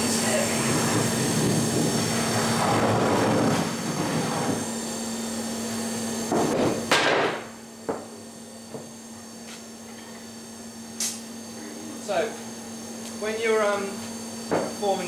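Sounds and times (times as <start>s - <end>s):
forge air blast rushing: 0.0s - 6.8s.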